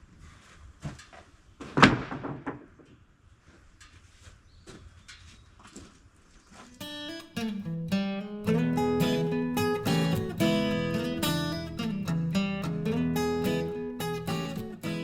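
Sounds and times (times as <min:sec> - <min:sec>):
loud bang: 0:01.8 - 0:02.8
acoustic guitar music: 0:06.8 - 0:15.0.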